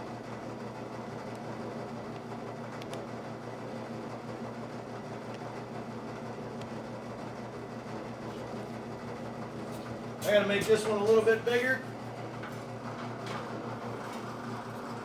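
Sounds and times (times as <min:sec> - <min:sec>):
motor humming: 0:06.2 - 0:15.0.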